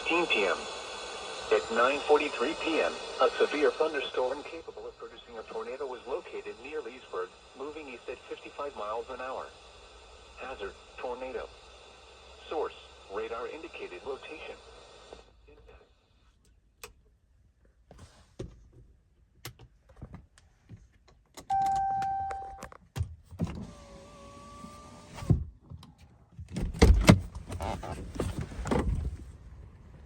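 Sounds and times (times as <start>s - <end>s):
steady beep: 21.5s - 22.6s
car power window motor: 23.4s - 25.4s, 26.8s - 29.1s.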